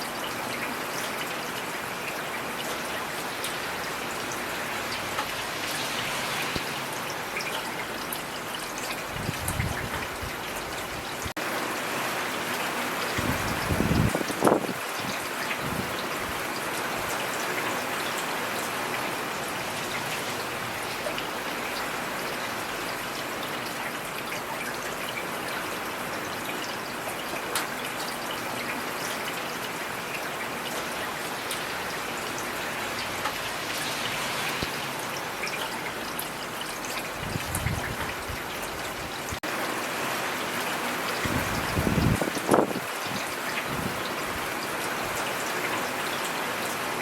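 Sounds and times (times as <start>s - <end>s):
steady rainfall: 0.0s - 47.0s.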